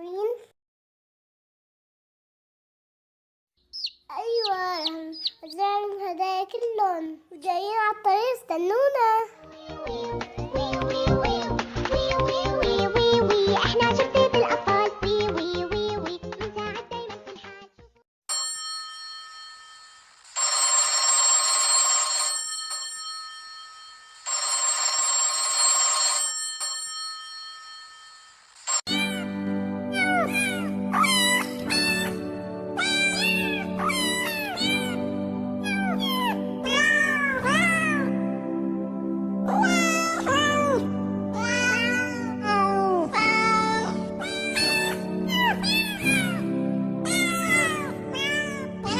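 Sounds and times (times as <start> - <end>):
background music with held notes: 9.4 - 17.7, 28.9 - 48.9
telephone ringing: 18.3 - 28.9
cat meowing: 32.8 - 35.0, 35.6 - 38.0, 44.2 - 46.5, 47.1 - 48.7.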